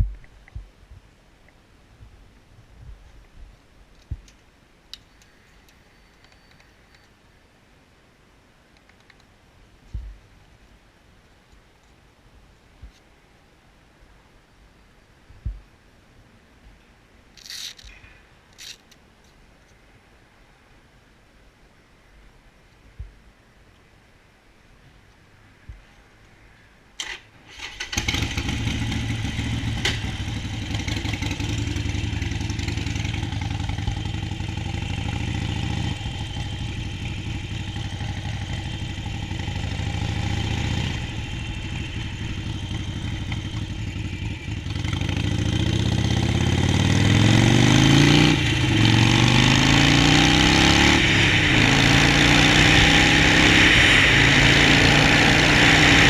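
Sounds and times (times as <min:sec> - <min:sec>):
motorcycle engine idling and revving: 0:27.5 - 0:56.0.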